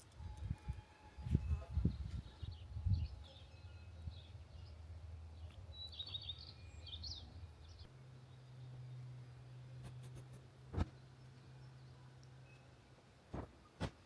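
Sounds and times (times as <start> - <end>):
small birds chirping: 1.4 - 13.0
dull thumps: 10.7 - 11.0, 13.3 - 14.0.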